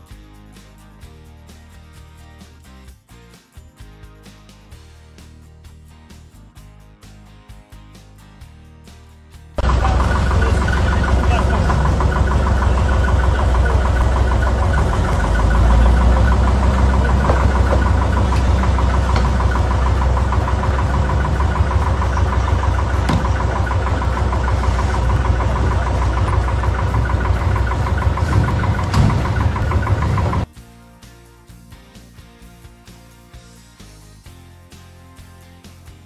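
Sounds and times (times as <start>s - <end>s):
car engine running: 9.6s - 30.5s.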